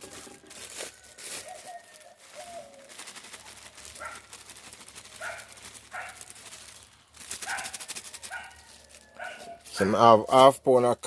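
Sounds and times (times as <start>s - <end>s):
plastic bag crinkling: 0.0s - 9.9s
dog barking: 5.2s - 6.3s, 7.4s - 10.0s.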